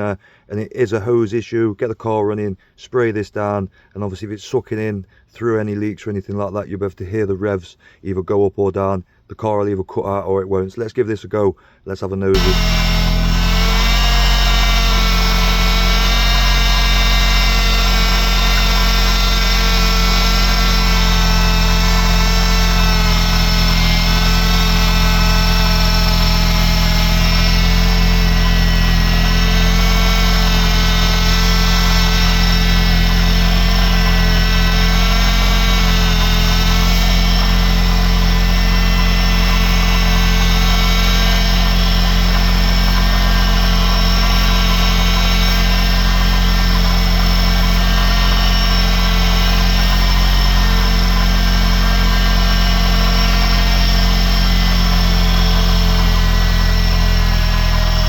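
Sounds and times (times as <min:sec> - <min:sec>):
car engine idling: 0:12.4 - 0:58.0
whine over engine note: 0:12.4 - 0:58.0.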